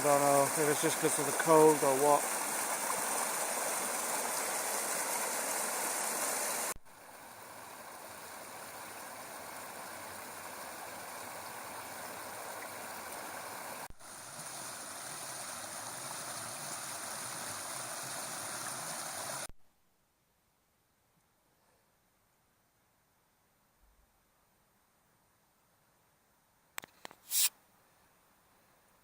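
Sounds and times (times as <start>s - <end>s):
stream running over rocks: 0.0s - 19.5s.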